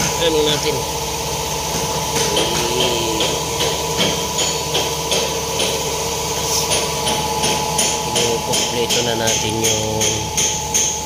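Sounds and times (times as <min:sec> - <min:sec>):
machine hum: 0:00.0 - 0:08.6
hammer striking metal: 0:02.1 - 0:05.9, 0:06.7 - 0:11.0.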